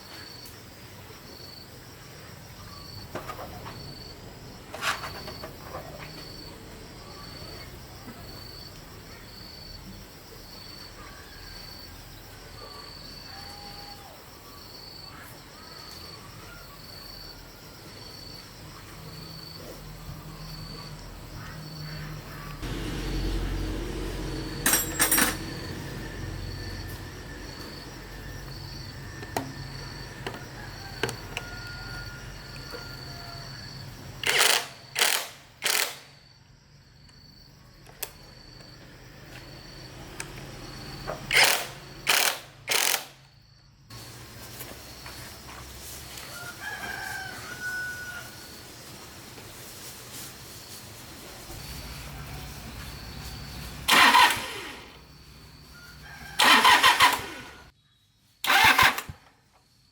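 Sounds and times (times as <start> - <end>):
cricket chirping: 0.0 - 59.9
short loud noisy bursts: 53.8 - 55.0.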